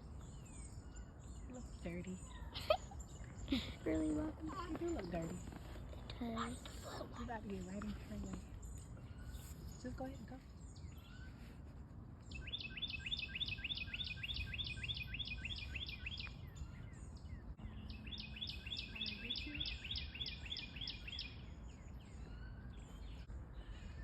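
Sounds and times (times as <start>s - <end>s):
songbird singing: 0.0s - 24.0s.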